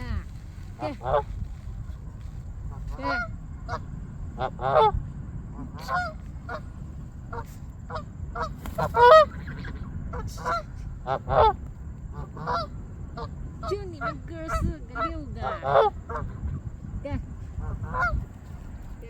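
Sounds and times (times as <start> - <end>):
geese honking: 0.8 - 1.2, 2.8 - 5.0, 5.7 - 6.7, 7.3 - 16.4, 17.6 - 18.2.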